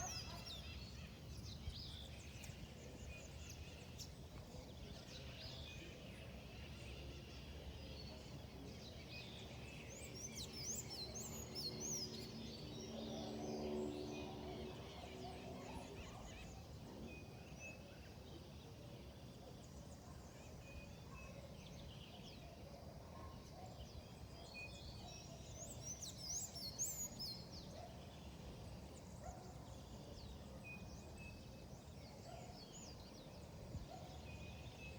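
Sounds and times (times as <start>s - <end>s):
birds chirping: 0.0s - 34.9s.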